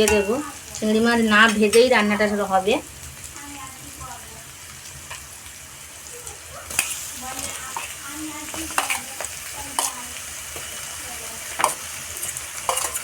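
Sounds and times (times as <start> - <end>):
spatula scraping and knocking pan: 0.0 - 1.9, 6.7 - 10.8, 11.5 - 13.0
prawns sizzling in hot oil: 0.0 - 13.0.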